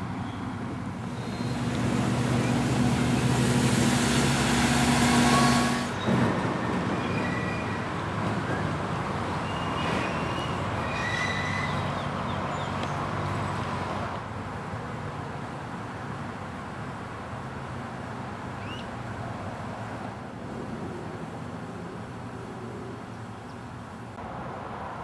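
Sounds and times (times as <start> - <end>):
road traffic noise: 0.0 - 25.0
high whine: 1.1 - 6.0.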